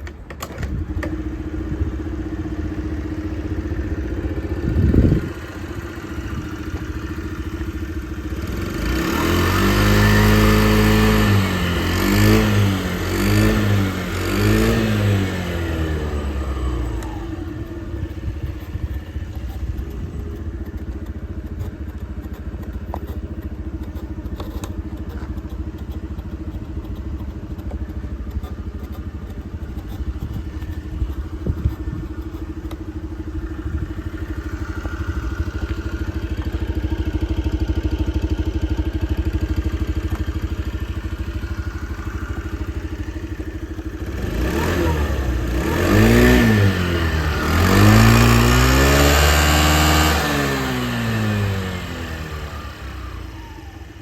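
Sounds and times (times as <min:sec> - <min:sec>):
scooter engine idling and revving: 0:00.0 - 0:54.0.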